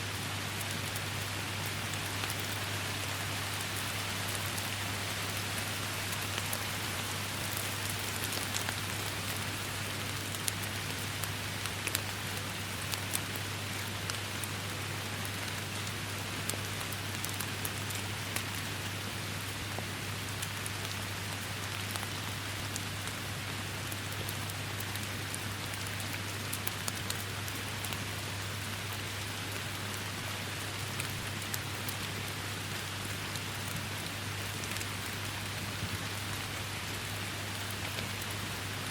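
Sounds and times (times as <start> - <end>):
heavy rainfall: 0.0 - 38.9
raindrops spattering on surfaces: 0.1 - 28.2.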